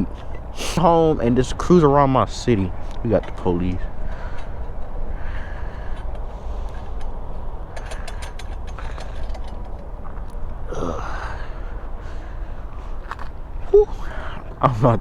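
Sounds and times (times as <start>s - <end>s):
steady low rumble: 0.0s - 15.0s
person sighing: 10.7s - 12.3s, 13.7s - 14.5s.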